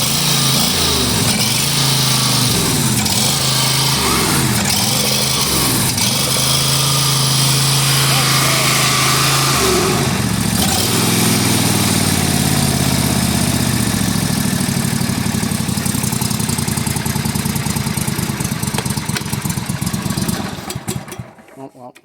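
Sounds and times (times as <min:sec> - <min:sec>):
lawnmower engine running: 0:00.0 - 0:22.0.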